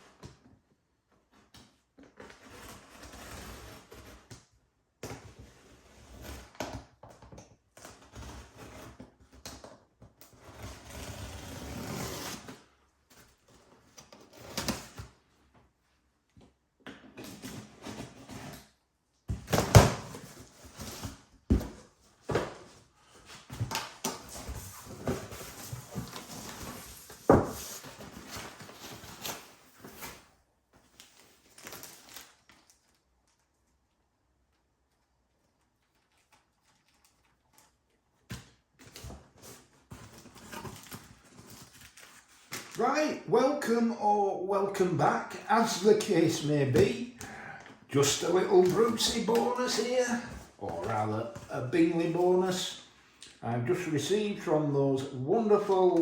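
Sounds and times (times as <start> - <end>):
rustling handling noise: 47.8 - 52.9.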